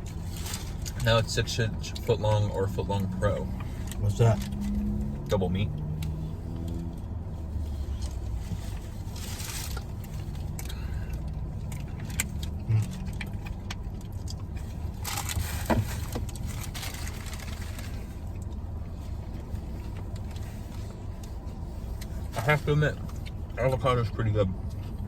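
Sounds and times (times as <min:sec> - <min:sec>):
rustles: 0:00.0 - 0:01.2, 0:06.0 - 0:23.4
low rumble inside car cabin: 0:00.0 - 0:25.0.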